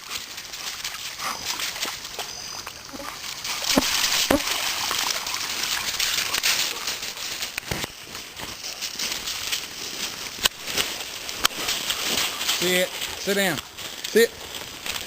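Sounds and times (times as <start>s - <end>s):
dog splashing through water: 0.0s - 8.0s.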